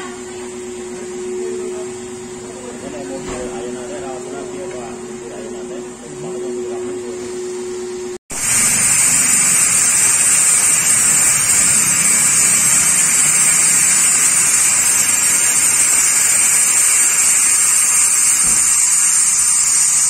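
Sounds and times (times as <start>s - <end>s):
pressure washer spraying water: 8.3s - 20.0s.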